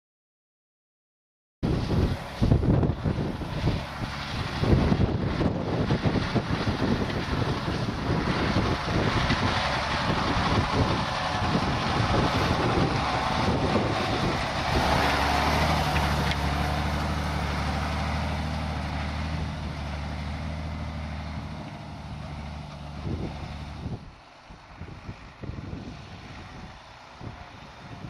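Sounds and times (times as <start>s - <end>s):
wind on microphone: 1.6s - 18.4s, 22.9s - 28.0s
truck diesel engine hum: 1.6s - 28.0s.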